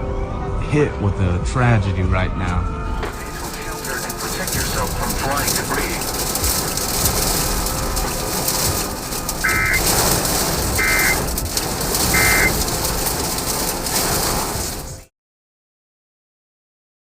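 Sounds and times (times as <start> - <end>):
wind: 2.6 - 15.0
rain: 3.0 - 15.1
short electronic beeps: 9.4 - 9.8, 10.8 - 11.2, 12.2 - 12.6.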